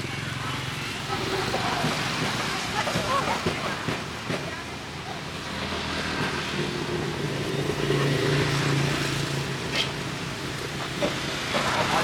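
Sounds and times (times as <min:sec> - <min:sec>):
vehicle engine passing by: 0:05.5 - 0:12.0.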